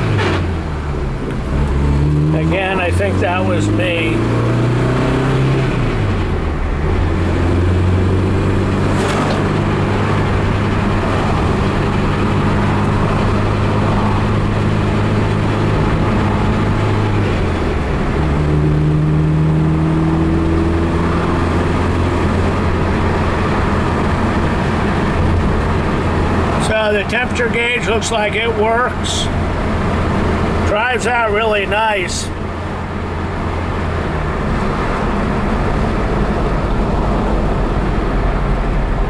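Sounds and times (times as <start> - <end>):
car engine accelerating: 0.0 - 39.0
road noise: 0.0 - 39.0.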